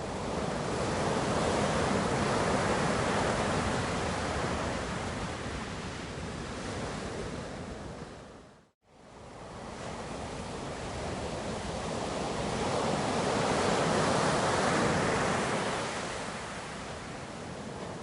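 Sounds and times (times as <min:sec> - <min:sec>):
ocean waves breaking: 0:09.4 - 0:18.0.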